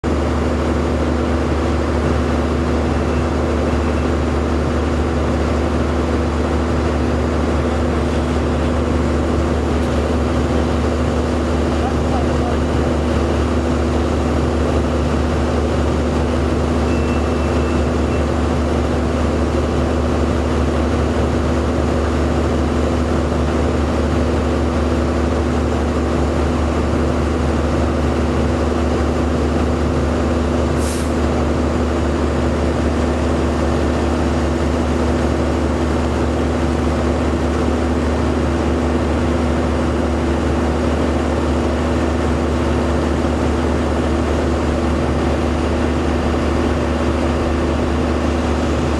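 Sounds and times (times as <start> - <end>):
large engine idling: 0.0 - 48.9
short hiss: 30.8 - 31.2.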